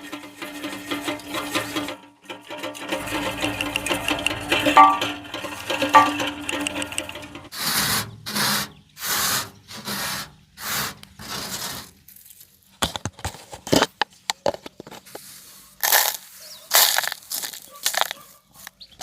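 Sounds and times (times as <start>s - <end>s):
hand scraping rust off metal: 0.0s - 12.0s.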